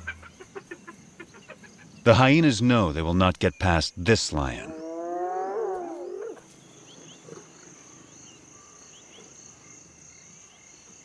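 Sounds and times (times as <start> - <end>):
crickets and insects chirping: 0.0 - 11.0
hyena yelping: 4.6 - 6.5.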